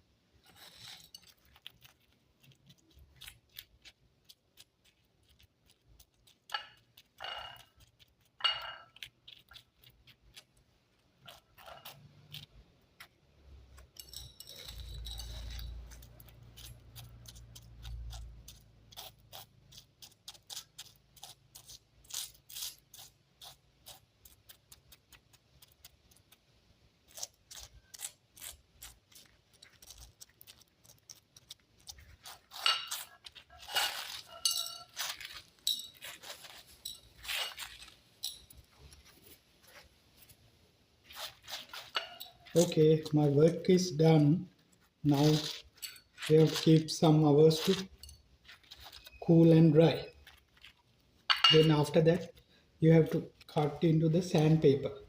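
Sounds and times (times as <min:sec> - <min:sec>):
small stones clicking and scraping: 0:41.1 - 0:52.0.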